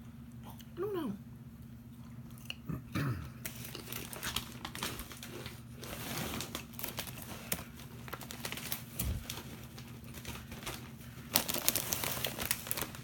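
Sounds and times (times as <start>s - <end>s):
chips being chewed: 3.4s - 13.0s.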